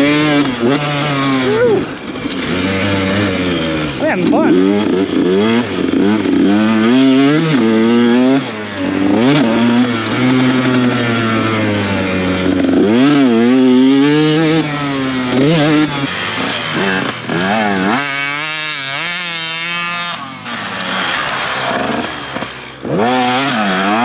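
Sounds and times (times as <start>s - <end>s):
dirt bike engine revving: 16.1s - 19.2s, 20.5s - 24.0s.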